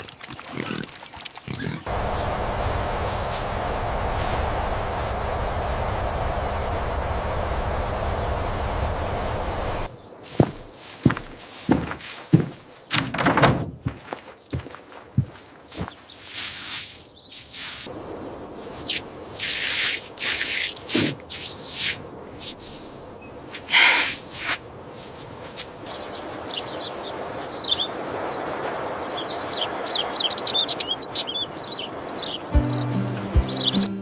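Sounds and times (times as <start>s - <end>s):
small birds chirping: 1.5s - 11.9s, 14.3s - 17.9s, 22.6s - 24.6s, 25.3s - 34.0s
loud noisy swishes: 1.9s - 9.9s
steady background hiss: 1.9s - 12.3s.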